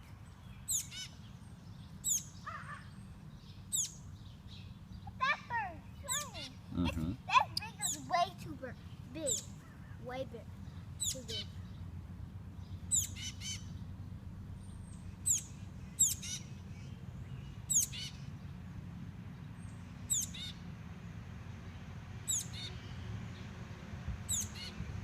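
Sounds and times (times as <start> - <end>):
baby bird chirping: 0.6 - 1.2, 2.0 - 3.0, 3.7 - 4.0, 5.0 - 11.6, 12.8 - 13.7, 15.3 - 16.5, 17.7 - 18.2, 22.3 - 22.8, 24.3 - 24.8.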